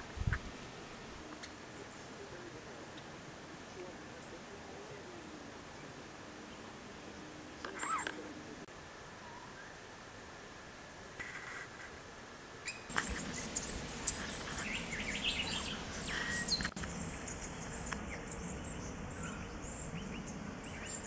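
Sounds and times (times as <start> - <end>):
faint hiss: 0.0 - 21.0
small birds chirping: 12.6 - 21.0.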